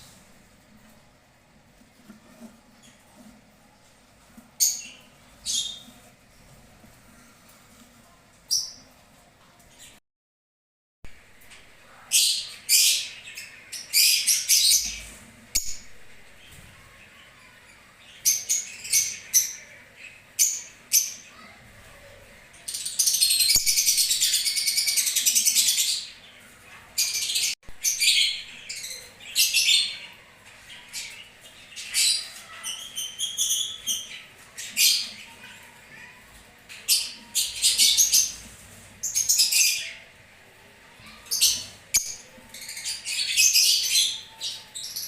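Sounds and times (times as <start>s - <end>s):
lovebirds chirping and squawking: 4.6s - 7.4s, 11.6s - 40.2s, 41.0s - 45.0s.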